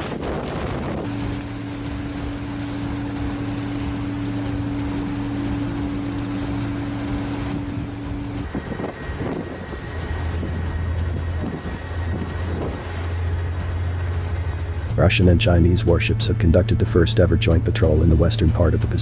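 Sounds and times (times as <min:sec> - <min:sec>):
wind noise on microphone: 0:00.0 - 0:03.2, 0:07.1 - 0:13.2
low machinery hum: 0:00.0 - 0:19.0.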